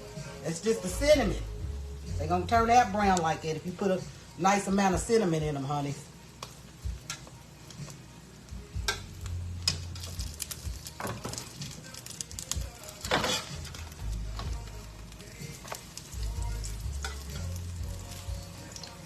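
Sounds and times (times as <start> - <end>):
batter sizzling in a pan: 0.0 - 19.0
utensil scraping against pan: 13.0 - 13.9.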